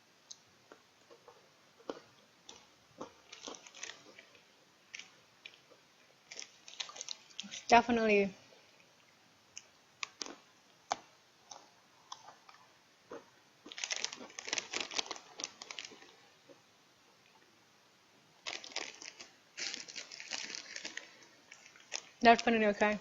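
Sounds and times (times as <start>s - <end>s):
crisp crunching: 1.2s - 5.6s, 6.2s - 7.7s, 10.0s - 16.2s, 18.4s - 22.2s.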